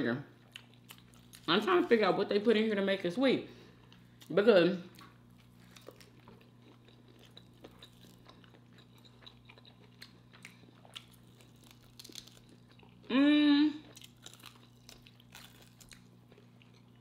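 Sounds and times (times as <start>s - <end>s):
steady low hum: 0.0s - 17.0s
faint chewing: 4.9s - 13.1s, 13.8s - 17.0s.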